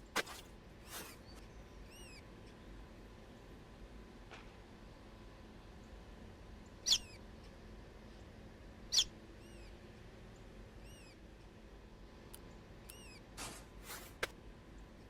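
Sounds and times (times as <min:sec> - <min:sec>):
bird chirping: 0:00.8 - 0:02.2, 0:06.8 - 0:07.2, 0:08.9 - 0:09.8, 0:10.8 - 0:11.2, 0:12.4 - 0:13.2.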